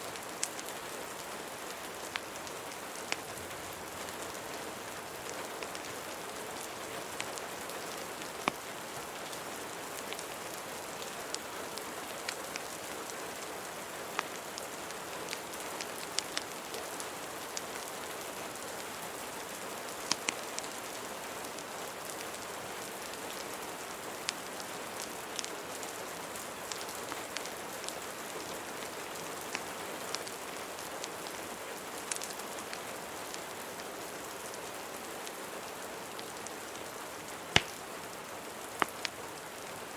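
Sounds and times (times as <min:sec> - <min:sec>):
wood fire crackling: 0:00.1 - 0:33.8, 0:35.2 - 0:39.9
rain hissing: 0:35.2 - 0:39.9.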